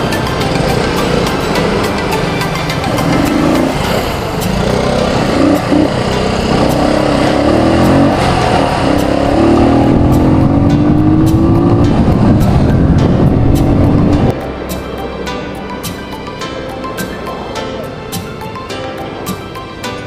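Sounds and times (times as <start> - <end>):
vehicle engine accelerating: 0.0 - 15.7
road and wind noise: 0.0 - 20.0.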